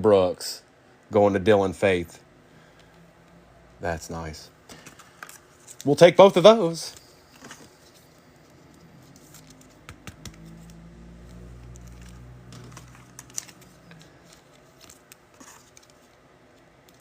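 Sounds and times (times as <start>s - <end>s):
low hum: 6.9s - 14.8s
cards clicking and tapping: 8.4s - 16.2s.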